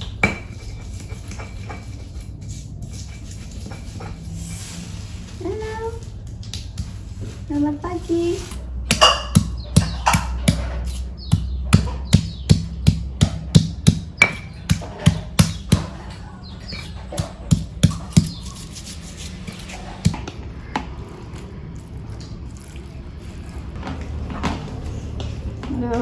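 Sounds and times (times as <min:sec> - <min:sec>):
knife chopping on cutting board: 0:08.9 - 0:16.0, 0:16.8 - 0:18.5.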